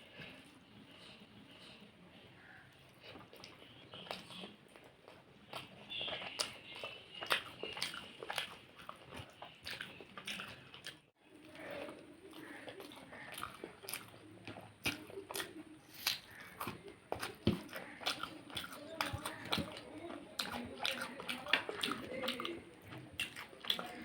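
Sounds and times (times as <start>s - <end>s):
person chewing food: 0.0s - 24.0s
wet mouth smacks: 14.8s - 19.3s.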